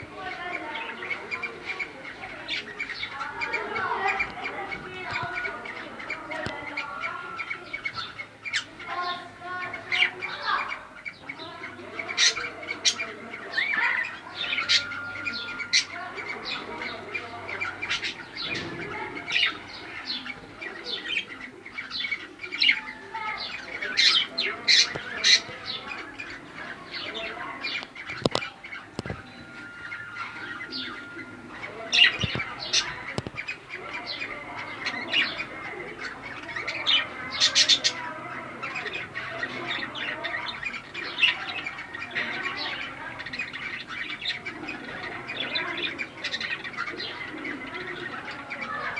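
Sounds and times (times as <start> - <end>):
cockatiels chirping and squawking: 0.0 - 48.9.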